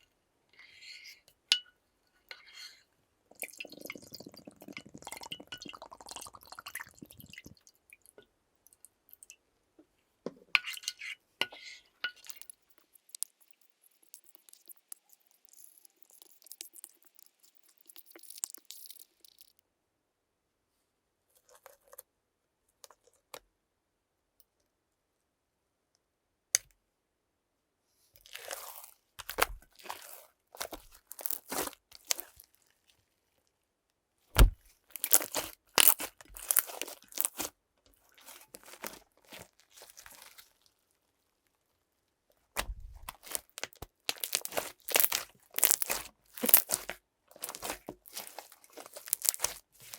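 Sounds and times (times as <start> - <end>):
slime squished by hand: 28.2 - 32.5, 34.4 - 37.5, 38.1 - 40.7, 42.6 - 49.9.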